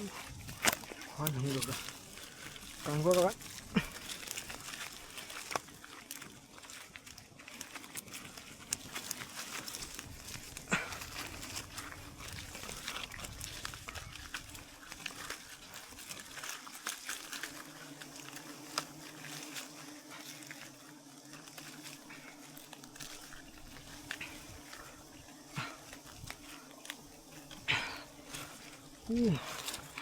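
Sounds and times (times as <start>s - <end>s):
bees humming: 0.0s - 6.6s, 7.4s - 30.0s
sharp clicks and crackles: 0.4s - 19.7s.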